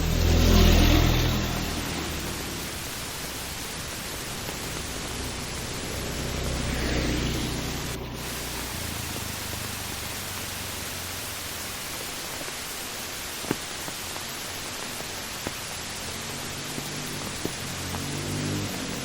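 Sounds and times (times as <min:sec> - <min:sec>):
vehicle engine: 0:00.0 - 0:11.9, 0:15.4 - 0:19.0
heavy rain hissing: 0:00.0 - 0:19.0.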